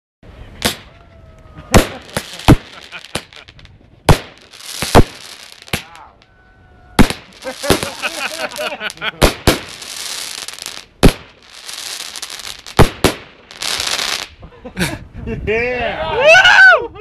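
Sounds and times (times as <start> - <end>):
firework bangs: 0.6 - 1.0, 1.6 - 6.0, 6.9 - 14.4
firework crackling: 0.6 - 1.0, 1.7 - 6.3, 6.9 - 14.4.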